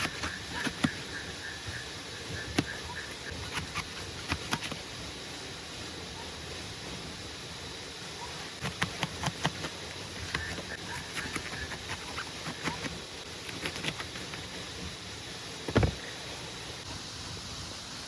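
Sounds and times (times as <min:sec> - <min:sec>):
heavy rain hissing: 0:00.0 - 0:18.0
heavy thump: 0:15.7 - 0:16.0.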